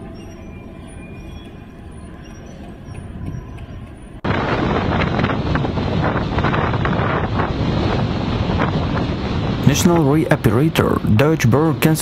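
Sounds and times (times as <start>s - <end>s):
street traffic noise: 0.0s - 7.2s
wind buffeting microphone: 0.0s - 12.0s.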